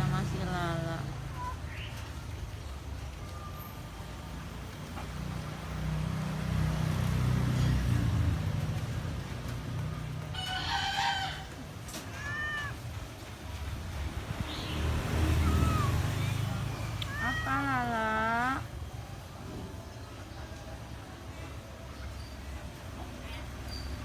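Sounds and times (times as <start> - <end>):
rooster crowing: 10.3 - 11.6.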